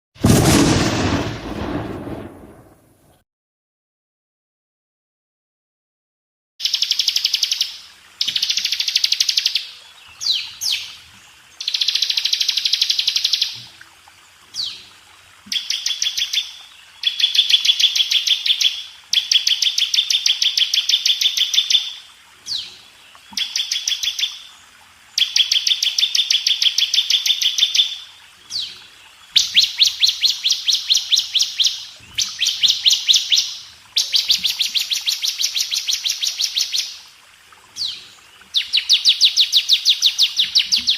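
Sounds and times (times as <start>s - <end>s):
bird singing high trills: 29.4s - 37.0s.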